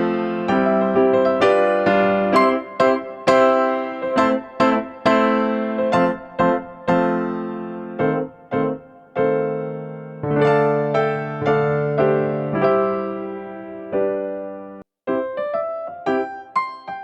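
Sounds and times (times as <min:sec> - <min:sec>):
electric piano melody: 0:00.0 - 0:17.0.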